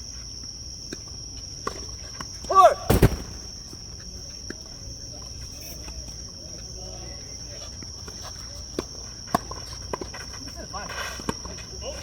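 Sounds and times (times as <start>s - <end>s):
insects chirring: 2.2s - 7.4s.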